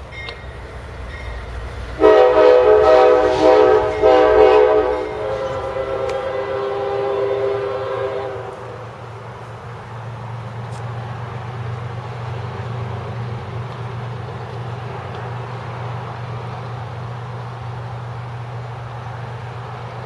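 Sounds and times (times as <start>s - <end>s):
passing train rumble: 0.0s - 20.0s
locomotive air horn: 2.0s - 8.8s.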